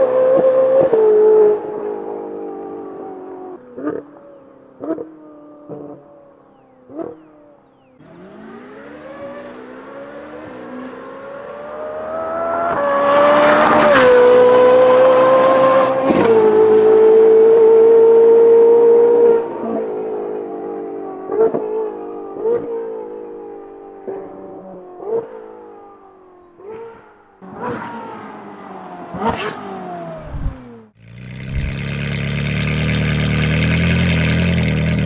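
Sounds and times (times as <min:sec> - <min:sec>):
car engine revving: 0:00.0 - 0:35.0
exhaust pops: 0:26.9 - 0:35.0.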